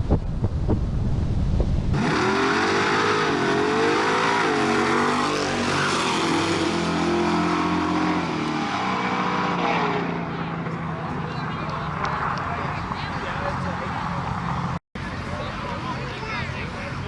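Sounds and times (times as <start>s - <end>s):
wind buffeting microphone: 0.0s - 2.0s
drag racing engine revving: 1.9s - 14.8s.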